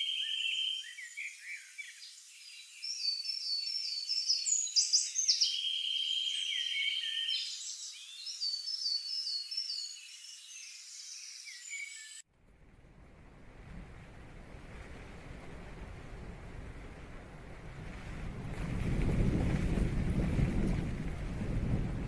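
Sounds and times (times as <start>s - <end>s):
wild birds singing: 0.0s - 12.2s.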